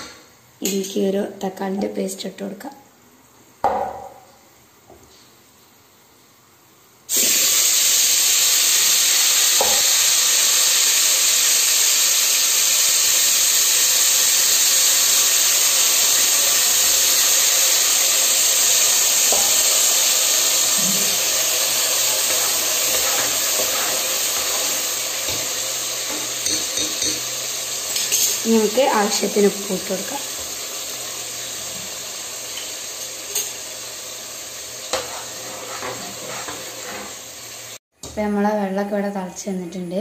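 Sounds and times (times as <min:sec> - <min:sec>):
paste sizzling in hot oil: 0:07.1 - 0:37.8.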